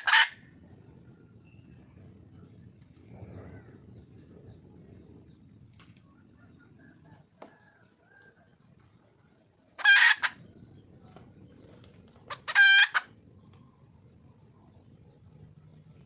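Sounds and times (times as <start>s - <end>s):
junglefowl hen calling: 0.0s - 0.6s, 9.8s - 10.5s, 12.2s - 13.2s.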